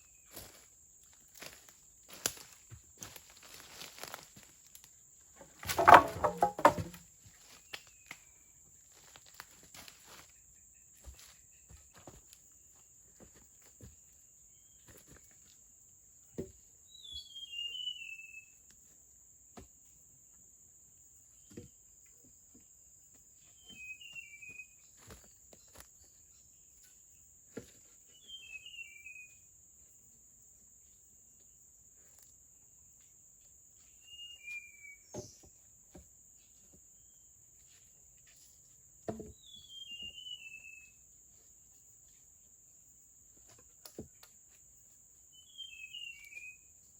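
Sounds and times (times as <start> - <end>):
sharp knocks: 5.7 - 7.0
bird chirping: 39.3 - 41.0, 45.3 - 46.7.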